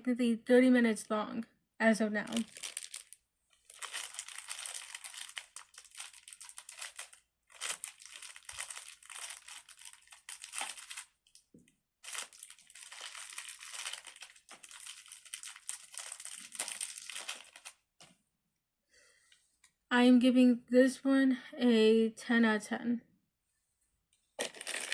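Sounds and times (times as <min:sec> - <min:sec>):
plastic packaging crinkling: 0:02.2 - 0:18.1, 0:24.4 - 0:24.9.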